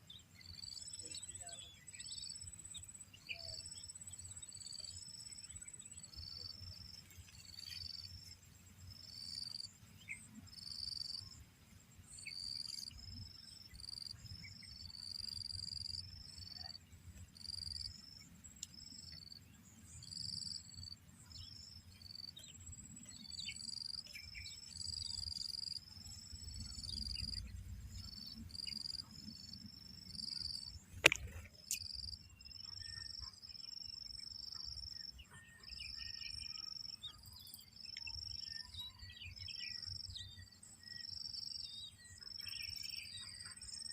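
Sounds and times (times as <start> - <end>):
sharp click: 30.9 - 31.9.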